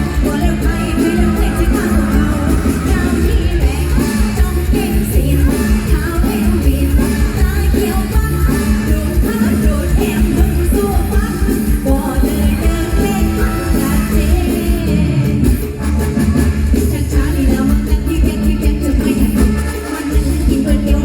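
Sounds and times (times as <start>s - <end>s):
loud electric band: 0.0s - 21.0s
person singing: 0.0s - 21.0s.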